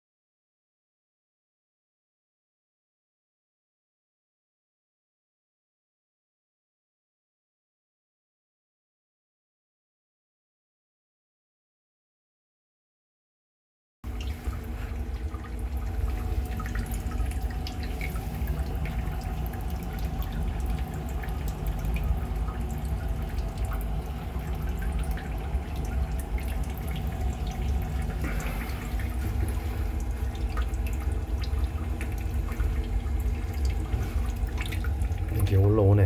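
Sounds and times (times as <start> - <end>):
small water splashes: 14.1 - 35.8
steady low hum with tones: 14.1 - 36.0
water running and dripping: 14.1 - 36.0.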